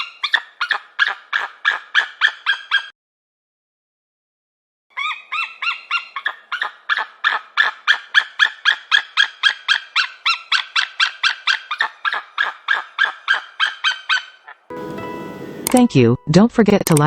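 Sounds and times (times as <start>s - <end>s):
falcon harsh rapid calls: 0.0s - 2.9s, 5.0s - 14.7s.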